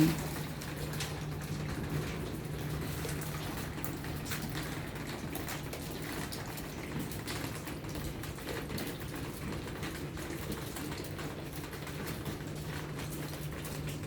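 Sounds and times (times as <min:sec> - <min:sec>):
water drips: 0:00.0 - 0:14.0.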